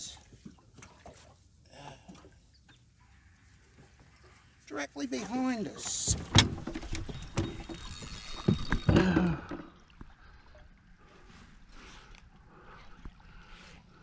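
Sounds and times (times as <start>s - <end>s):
knocks and clatter against boat: 5.2s - 9.6s.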